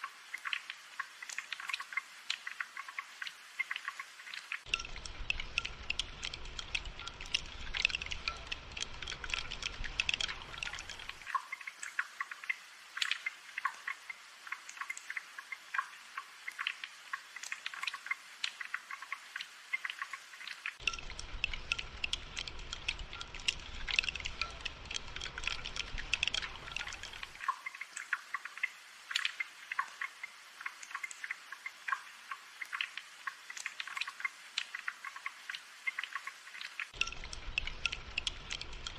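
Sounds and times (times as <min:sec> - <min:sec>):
rain dripping: 0:00.0 - 0:38.9.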